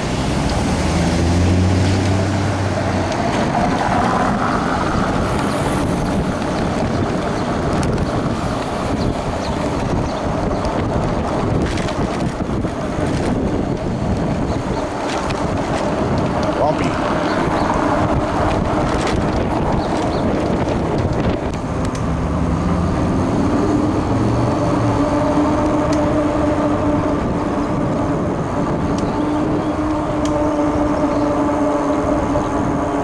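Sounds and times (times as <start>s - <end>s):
wind and road noise: 0.0s - 33.0s
electric motor whine: 21.6s - 33.0s.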